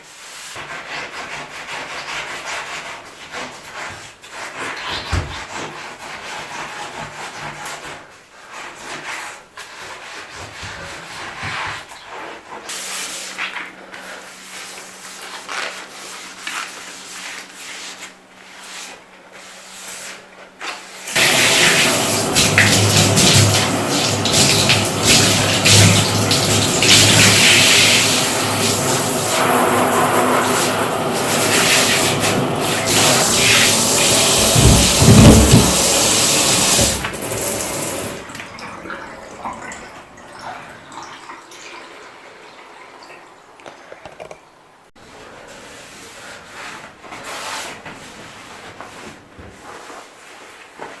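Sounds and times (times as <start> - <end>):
rubbing and hissing: 0.1 - 38.2
water tap running and splashing: 21.1 - 42.6.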